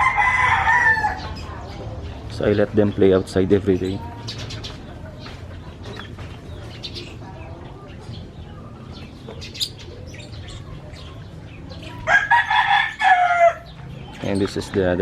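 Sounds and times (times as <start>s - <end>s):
rooster crowing: 0.0s - 1.3s, 12.0s - 13.7s
small birds chirping: 0.0s - 15.0s.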